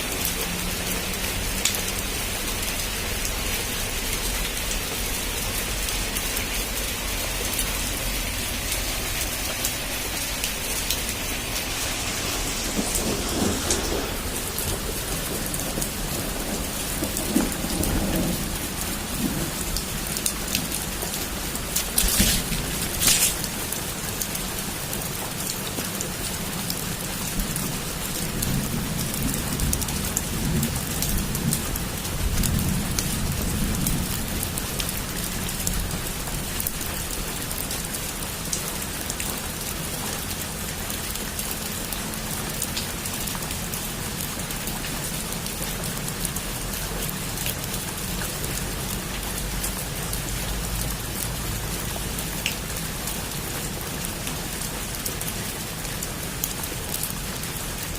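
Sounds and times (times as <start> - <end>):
heavy rain falling: 0.0 - 57.9
raindrops ticking on a surface: 0.0 - 57.9
low rumble of thunder: 9.6 - 24.3, 26.9 - 36.7.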